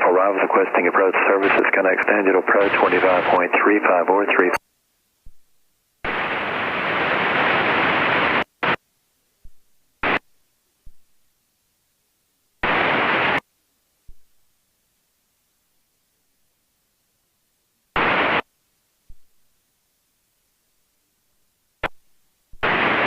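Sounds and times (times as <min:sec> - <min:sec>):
radio static hiss bursts: 0:00.0 - 0:04.6, 0:05.2 - 0:11.3, 0:12.6 - 0:14.6, 0:17.9 - 0:19.6, 0:21.8 - 0:23.0.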